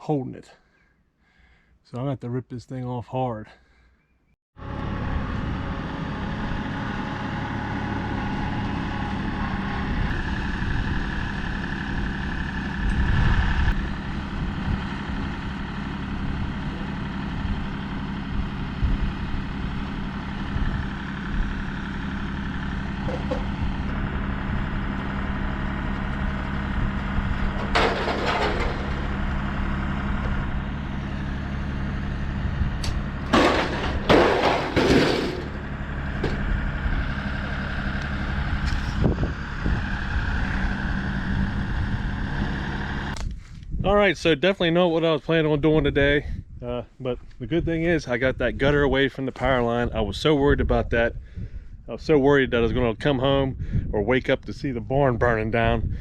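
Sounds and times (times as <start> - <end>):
tractor diesel engine running: 4.6 - 43.2
metal gutter crashing and scraping: 27.4 - 30.2, 32.8 - 36.5.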